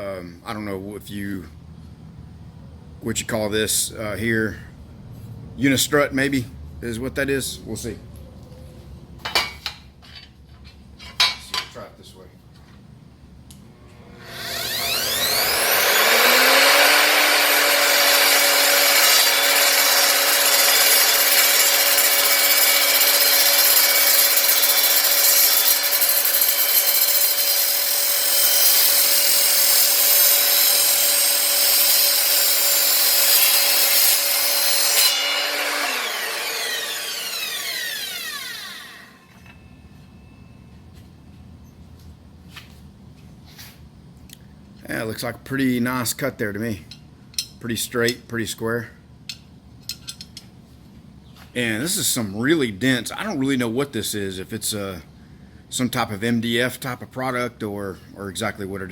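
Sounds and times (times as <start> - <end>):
mitre saw cutting steel: 13.8 - 39.6
saw blade winding down whine: 13.8 - 39.9.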